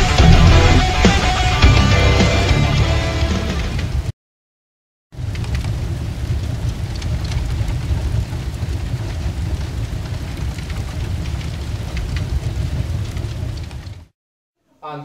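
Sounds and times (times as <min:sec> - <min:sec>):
flames roaring: 0:00.0 - 0:04.1, 0:05.2 - 0:14.1
fire crackles: 0:05.2 - 0:14.2.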